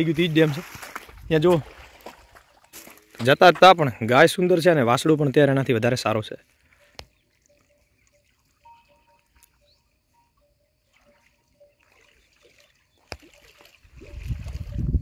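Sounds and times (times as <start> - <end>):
distant bird calling: 6.4 - 13.7
wind buffeting microphone: 13.8 - 15.0.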